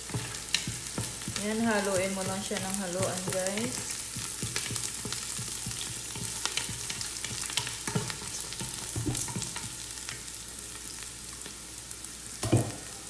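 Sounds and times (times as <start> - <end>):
wooden spatula scraping and tapping pot: 0.0 - 10.2
onions sizzling in oil: 0.0 - 13.0.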